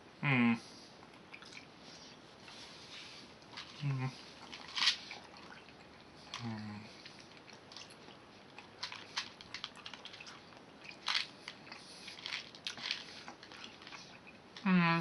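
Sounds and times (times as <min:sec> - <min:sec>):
person chewing candy: 0:03.4 - 0:14.7.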